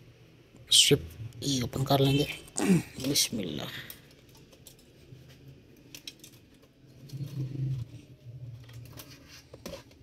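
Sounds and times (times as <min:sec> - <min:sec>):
plastic parts clicking and rattling: 0:03.0 - 0:10.0.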